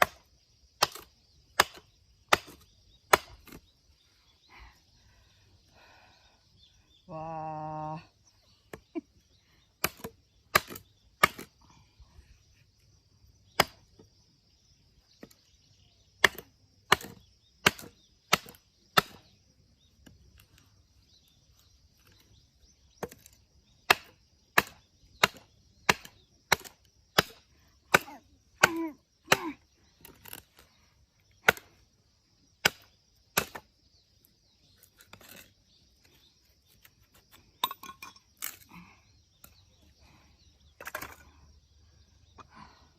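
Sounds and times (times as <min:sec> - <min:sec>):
axe chopping wood: 0:00.0 - 0:03.6, 0:09.8 - 0:11.5, 0:13.6 - 0:14.1, 0:16.2 - 0:19.3, 0:23.0 - 0:30.4, 0:31.4 - 0:31.8, 0:32.6 - 0:33.7.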